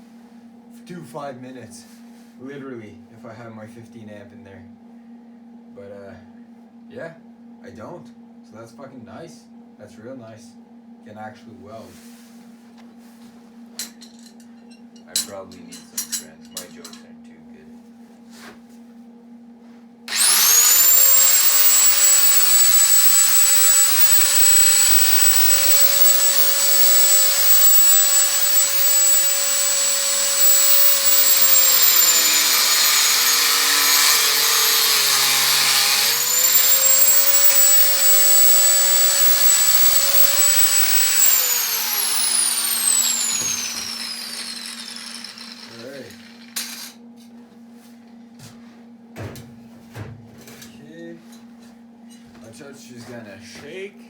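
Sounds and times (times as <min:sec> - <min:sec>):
angle grinder whining: 0:20.1 - 0:47.0.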